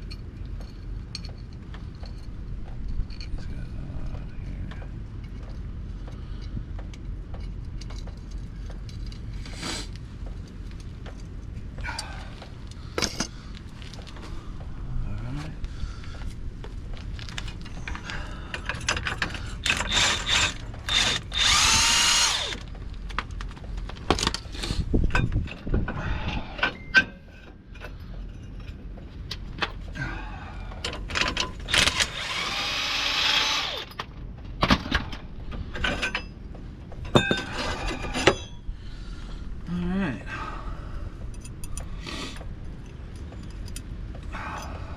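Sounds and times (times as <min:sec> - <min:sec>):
cordless power tool whirring: 0:19.6 - 0:22.7, 0:31.7 - 0:34.0.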